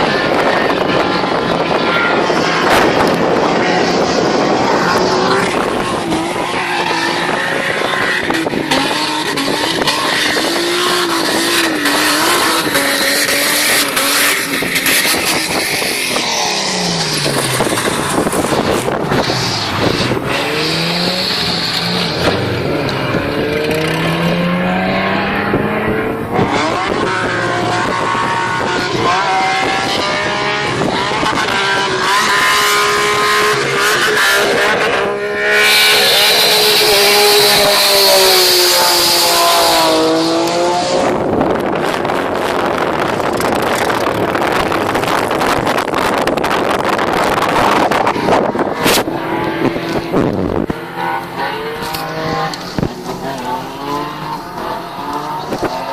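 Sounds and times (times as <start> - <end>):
tire squeal: 0.0 - 23.2
car engine revving hard: 0.0 - 55.9.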